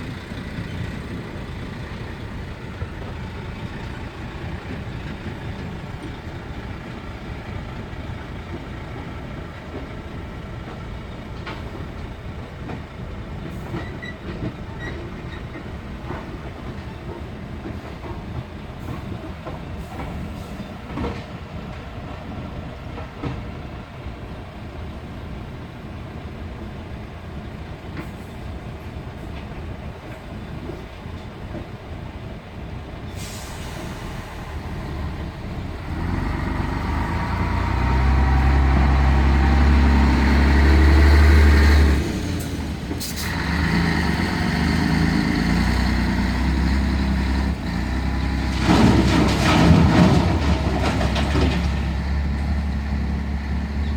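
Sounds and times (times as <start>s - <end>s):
excavator diesel engine running: 0.0s - 21.2s, 32.2s - 53.9s.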